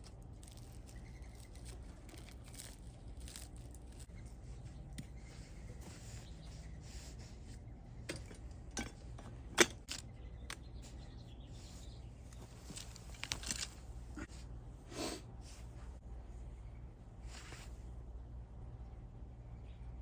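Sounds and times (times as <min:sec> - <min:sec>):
objects being handled: 0:00.0 - 0:10.6, 0:11.7 - 0:14.3
faint low hum: 0:00.0 - 0:20.0.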